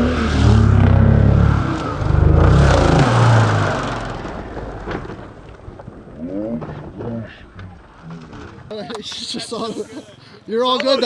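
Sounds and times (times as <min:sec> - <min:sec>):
motorcycle engine revving: 0:00.0 - 0:06.7.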